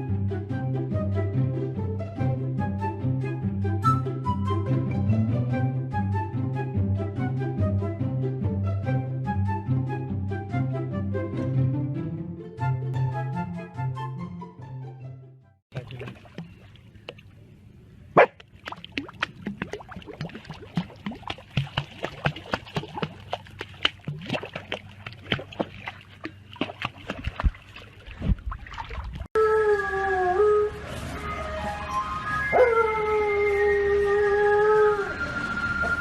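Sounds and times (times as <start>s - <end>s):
puppy howling: 32.4s - 36.0s.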